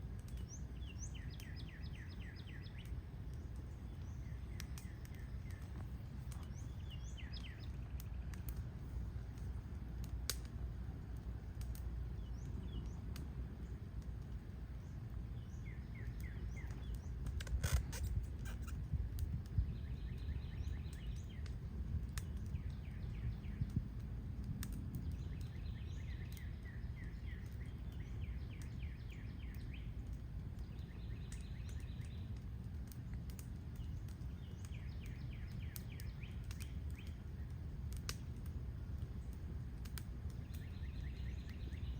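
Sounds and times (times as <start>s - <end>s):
low outdoor rumble: 0.0s - 41.9s
birds singing trilled phrases: 0.2s - 8.4s, 14.7s - 17.3s, 19.6s - 21.6s, 30.6s - 32.4s, 33.7s - 37.6s, 40.3s - 41.9s
sharp clicks: 4.6s - 6.6s.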